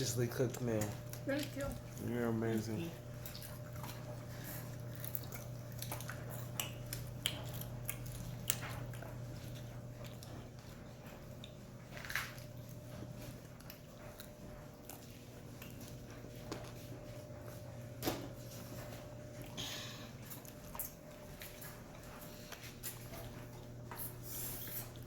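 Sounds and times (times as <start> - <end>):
people chewing chicken wings: 0.0 - 25.0
steady low hum: 0.0 - 25.0.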